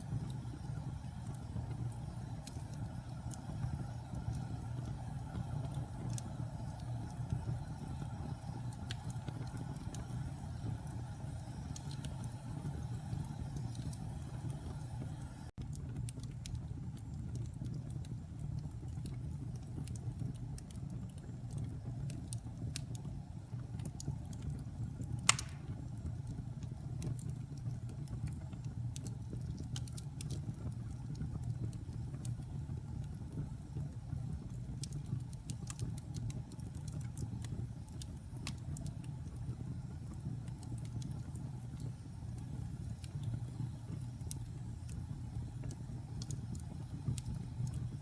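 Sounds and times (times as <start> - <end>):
fire crackling: 0.0 - 48.0
low rumble of fire: 0.0 - 48.0
loud pop of fire: 25.2 - 26.1.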